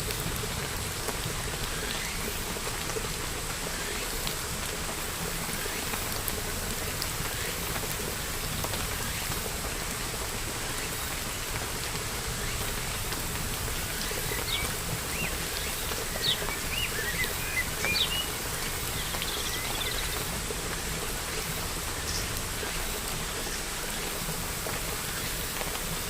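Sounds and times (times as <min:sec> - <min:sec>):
steady rain falling: 0:00.0 - 0:26.0
small birds chirping: 0:14.0 - 0:20.3.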